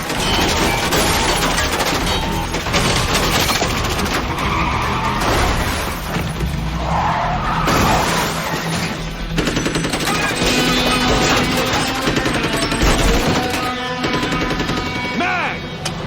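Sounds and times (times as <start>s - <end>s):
rapid gunfire: 0.0s - 4.5s, 7.7s - 15.7s
car engines: 0.0s - 16.0s
tyres screeching: 0.0s - 16.0s.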